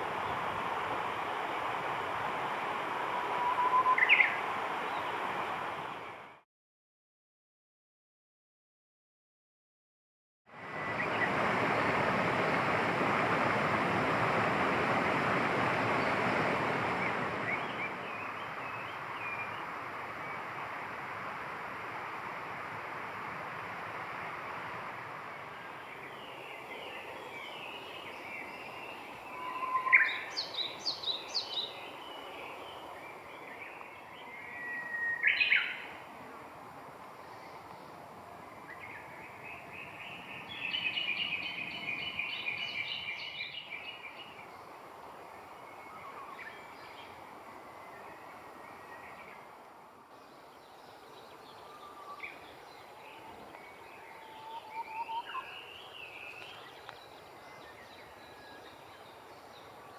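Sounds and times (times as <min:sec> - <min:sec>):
steady background hiss: 0:00.0 - 0:06.3, 0:10.6 - 0:59.9
birds calling: 0:03.2 - 0:05.3
rushing noise: 0:10.5 - 0:19.1.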